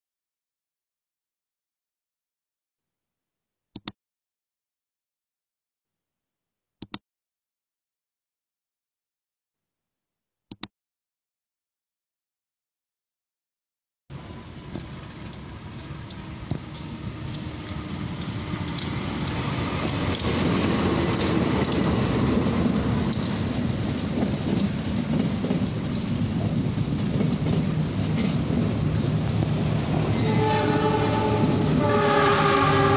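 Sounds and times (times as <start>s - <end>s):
sharp clicks: 3.8s - 4.0s, 6.8s - 7.0s, 16.0s - 20.4s, 22.5s - 24.8s
train wheels rumbling on rails: 14.1s - 32.9s.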